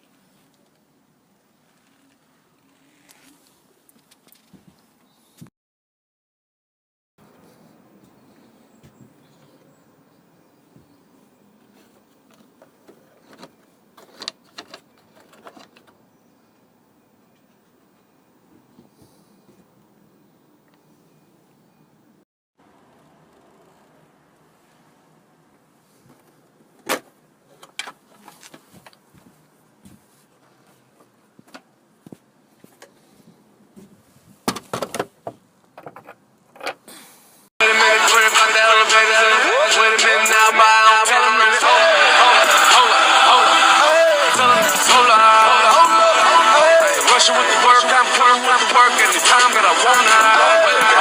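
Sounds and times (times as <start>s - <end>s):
faint low background noise: 0.0s - 5.3s, 7.2s - 51.0s
hard parts knocking and rattling: 34.5s - 36.8s.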